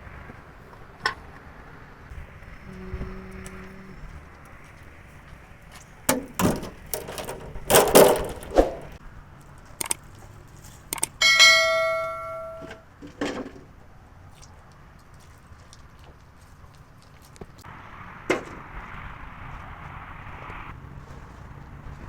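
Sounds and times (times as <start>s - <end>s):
metal parts clanking: 6.1s - 9.0s, 10.8s - 13.7s
ringing strike on metal: 11.2s - 12.8s.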